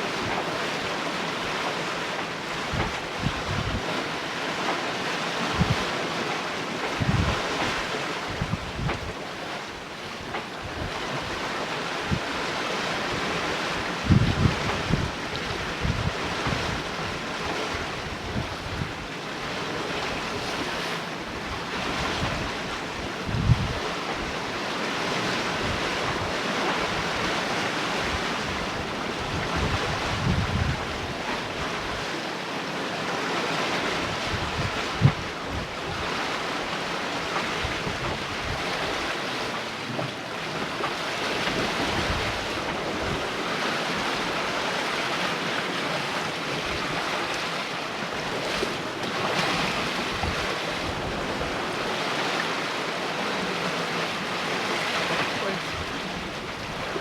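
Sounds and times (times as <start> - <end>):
water rushing along hull: 0.0 - 57.0
wind buffeting microphone: 2.5 - 4.0, 5.4 - 6.0, 6.8 - 9.2, 12.0 - 24.5, 25.2 - 32.2, 33.8 - 39.3, 40.6 - 44.7, 48.1 - 52.5.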